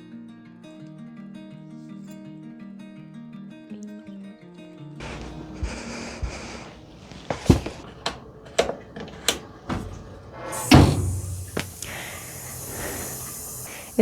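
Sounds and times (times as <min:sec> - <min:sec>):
household knocks and clunks: 0:05.0 - 0:14.0
loud rushing hiss: 0:05.0 - 0:14.0.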